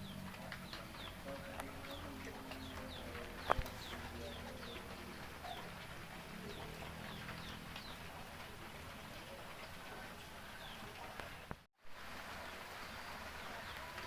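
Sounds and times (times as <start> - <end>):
bird chirping: 0.0 - 11.2.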